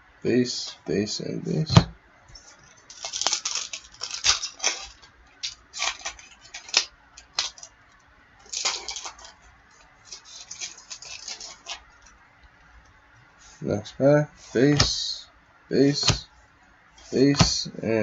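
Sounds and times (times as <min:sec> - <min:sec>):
cards being handled: 0:02.4 - 0:07.7, 0:08.4 - 0:09.4, 0:10.0 - 0:12.1, 0:15.8 - 0:16.3
foil wrapper crinkling and tearing: 0:02.9 - 0:07.7, 0:08.4 - 0:09.4, 0:10.0 - 0:12.1.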